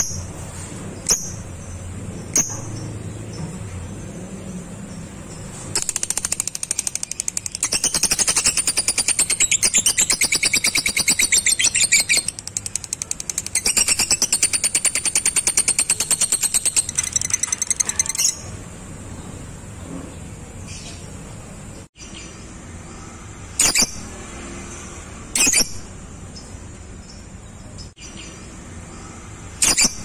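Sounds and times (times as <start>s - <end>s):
bird chattering trill: 5.8s - 18.5s.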